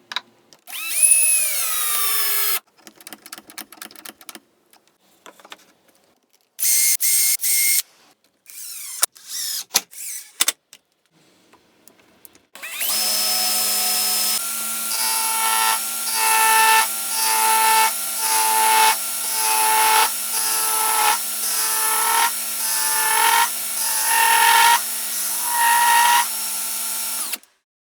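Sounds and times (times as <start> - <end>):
electric drill whining: 0.7 - 2.6, 8.5 - 10.2, 12.6 - 27.5.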